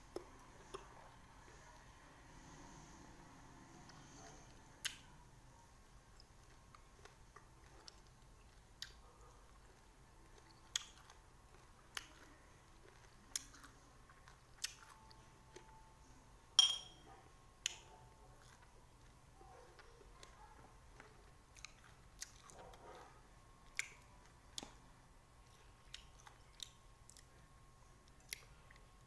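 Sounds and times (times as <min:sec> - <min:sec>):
person chewing: 0:06.0 - 0:15.8, 0:18.4 - 0:19.2, 0:19.8 - 0:23.0, 0:23.6 - 0:24.7, 0:25.4 - 0:29.0
mouth clicks and smacks: 0:23.7 - 0:24.8.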